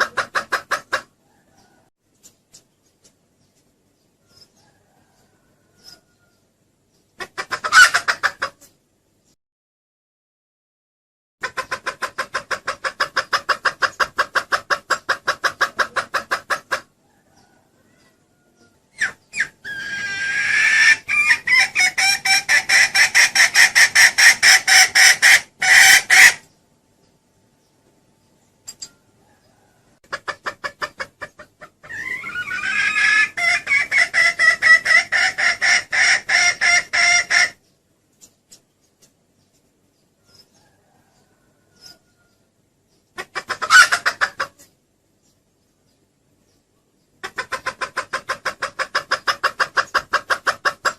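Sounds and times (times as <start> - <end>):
hen cackling: 0.0 - 1.9, 7.2 - 8.8, 11.4 - 26.5, 29.2 - 37.6, 43.1 - 44.7, 47.2 - 50.9
hen clucking: 0.0 - 9.4, 11.4 - 27.2, 28.6 - 45.4, 46.5 - 50.9.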